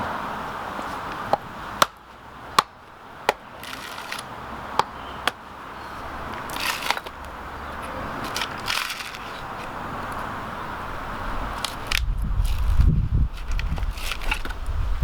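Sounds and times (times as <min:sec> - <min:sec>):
tool striking wooden stump: 0:01.2 - 0:05.4, 0:06.4 - 0:07.2
crunching scrape: 0:03.3 - 0:10.2, 0:11.5 - 0:14.7.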